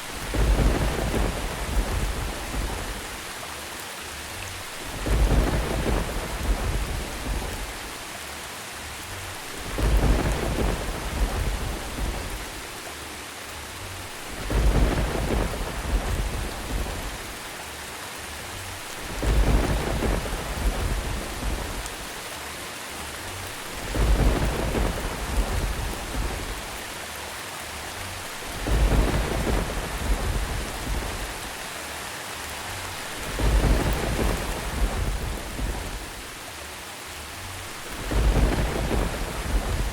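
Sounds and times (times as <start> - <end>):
thunder rumbling: 0.0 - 3.4, 4.7 - 8.0, 9.3 - 12.8, 14.0 - 17.5, 18.7 - 22.2, 23.3 - 27.0, 28.2 - 31.8, 32.6 - 36.4, 37.7 - 39.9
steady rain hiss: 0.0 - 39.9.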